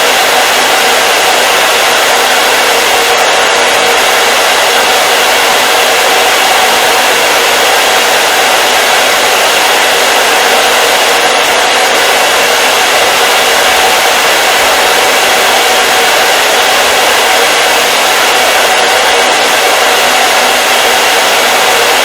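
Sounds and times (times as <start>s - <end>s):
hair dryer running: 0.0s - 22.0s.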